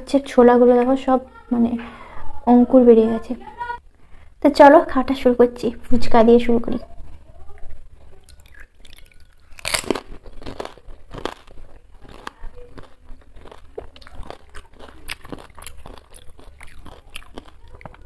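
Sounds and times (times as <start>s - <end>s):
chewing crackles and clicks: 7.5s - 18.0s
crisp shell crunching when bitten: 8.2s - 18.0s.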